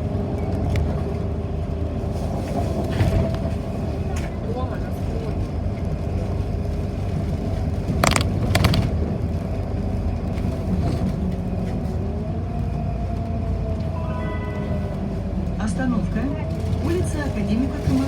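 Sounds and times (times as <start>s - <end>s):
bus engine and road rumble: 0.0s - 18.0s
rattling knock: 8.0s - 8.9s.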